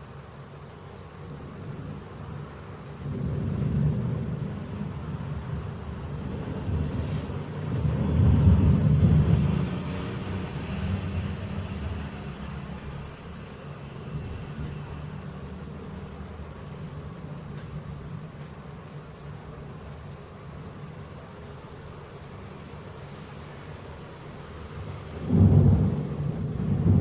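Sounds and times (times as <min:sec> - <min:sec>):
rolling thunder: 0:01.3 - 0:18.3, 0:25.0 - 0:27.0.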